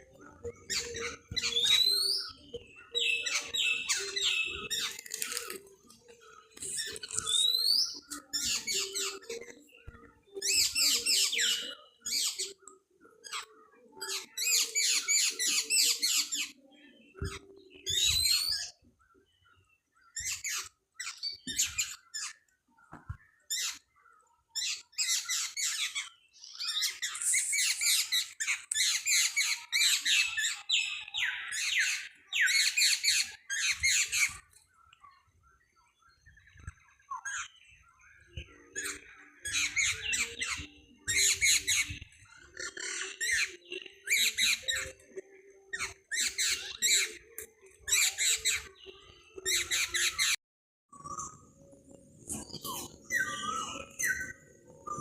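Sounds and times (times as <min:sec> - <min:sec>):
birds chattering: 0:00.0 - 0:50.4, 0:51.1 - 0:55.0.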